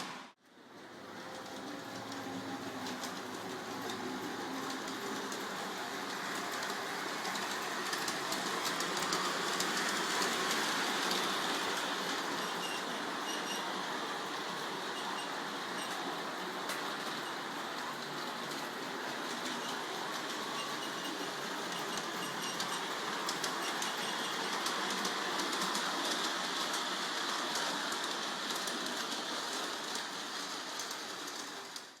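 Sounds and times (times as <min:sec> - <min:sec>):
model train rolling and whirring: 0:00.0 - 0:32.0
faint ticks from rails: 0:01.2 - 0:31.9
wheel clicks at rail joints: 0:19.4 - 0:31.9.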